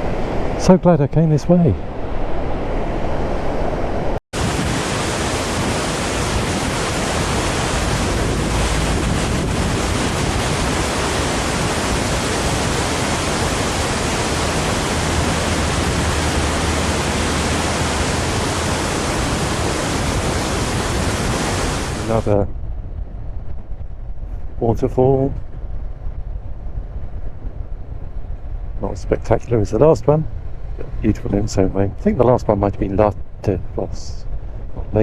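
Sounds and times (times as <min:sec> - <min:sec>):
waterfall roaring: 0:04.4 - 0:22.4.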